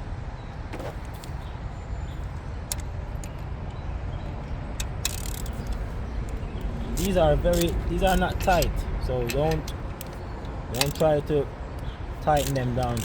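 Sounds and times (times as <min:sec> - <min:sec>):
hand tool clicks: 0:04.8 - 0:13.0.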